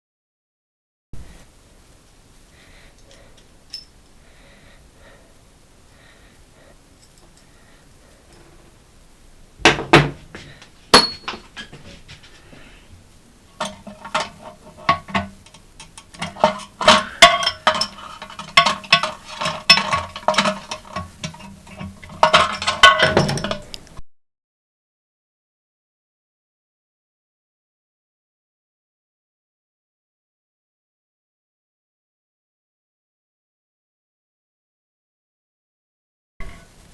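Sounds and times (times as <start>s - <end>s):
small clicks and clinks: 3.0s - 4.0s, 7.0s - 7.5s, 13.6s - 24.0s
hard objects knocking: 9.6s - 12.4s, 13.6s - 23.8s.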